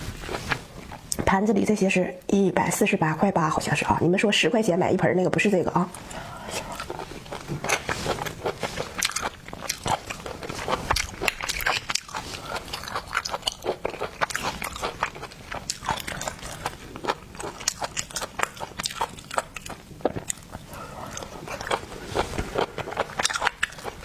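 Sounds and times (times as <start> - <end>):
shells crunching when chewed: 6.5 - 24.0.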